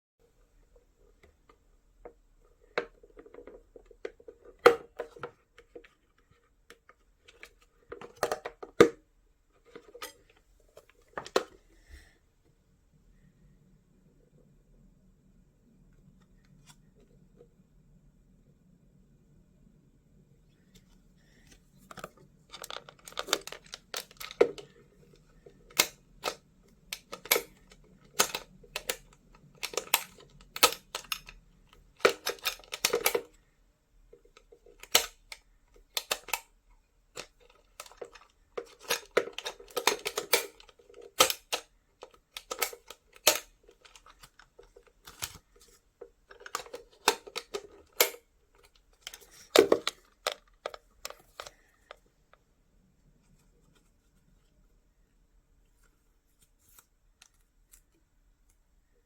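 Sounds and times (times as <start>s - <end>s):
handling rustles taps and clicks: 0.2s - 12.6s, 15.9s - 17.6s, 20.5s - 59.0s.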